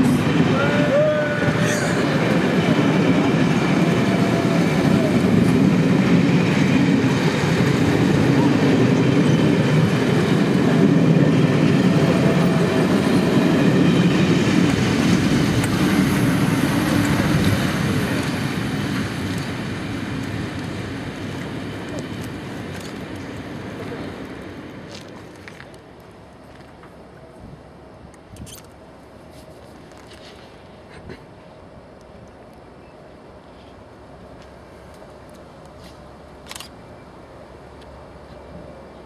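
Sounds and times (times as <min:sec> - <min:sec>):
train wheels on rails rushing past: 0:00.0 - 0:27.1.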